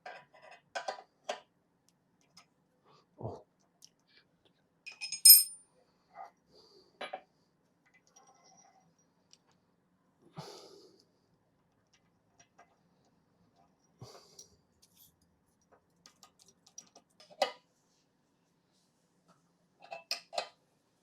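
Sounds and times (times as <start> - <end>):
metal parts clinking: 4.9 - 5.6.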